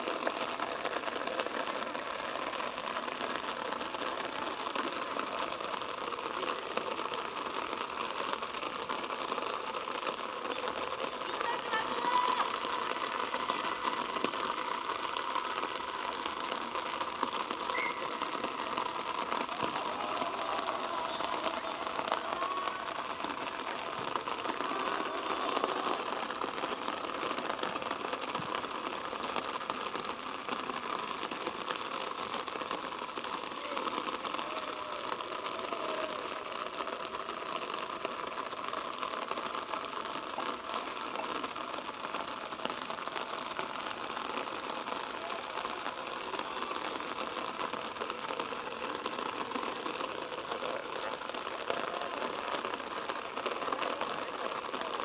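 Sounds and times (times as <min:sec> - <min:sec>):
faint distant voices: 0:09.6 - 0:27.9.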